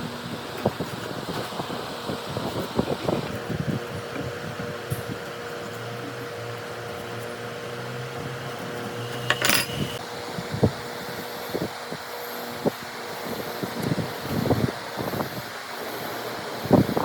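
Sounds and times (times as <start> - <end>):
fan hum: 0.0 - 17.0
clattering rattle: 9.3 - 10.0.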